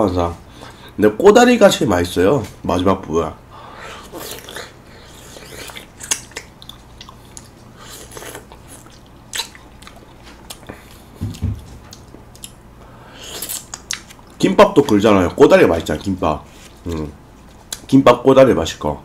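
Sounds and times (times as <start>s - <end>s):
chewing fruit: 4.0s - 17.9s.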